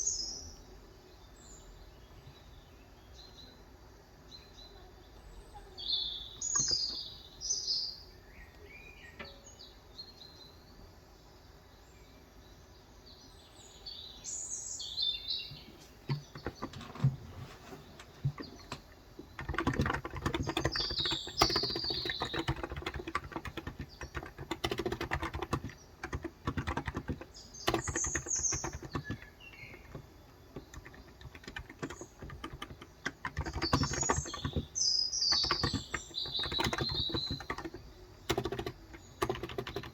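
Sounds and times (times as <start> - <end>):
birds chirping: 0.0 - 39.9
keyboard typing: 6.4 - 7.0, 16.0 - 39.9.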